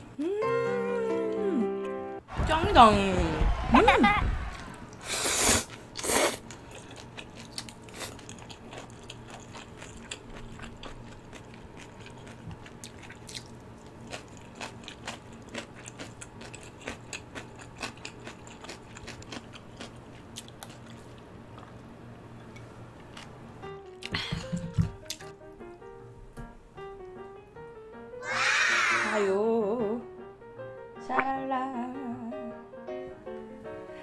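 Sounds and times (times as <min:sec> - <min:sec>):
close-up chewing: 0:05.6 - 0:21.8.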